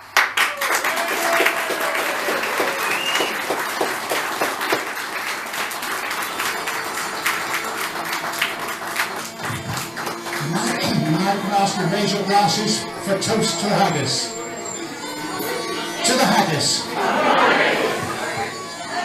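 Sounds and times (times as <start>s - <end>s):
crowd applauding and cheering: 0.0s - 19.0s
voices calling out: 10.4s - 19.0s.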